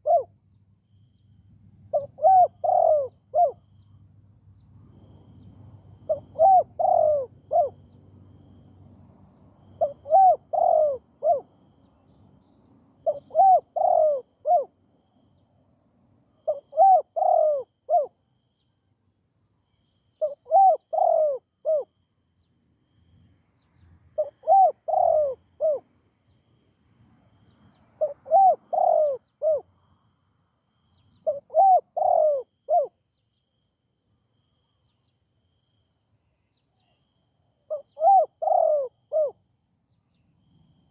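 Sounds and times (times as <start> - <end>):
dove cooing: 0.0 - 0.3, 1.9 - 3.6, 6.0 - 7.8, 9.7 - 11.6, 13.0 - 14.8, 16.4 - 18.2, 20.2 - 21.9, 24.2 - 25.9, 28.0 - 29.7, 31.2 - 33.0, 37.7 - 39.4.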